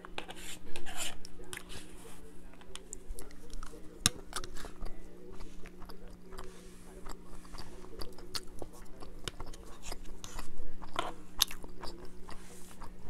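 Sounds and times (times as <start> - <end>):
plastic fork on paper plate: 0.0 - 13.0
chewing and mouth sounds: 2.6 - 13.0.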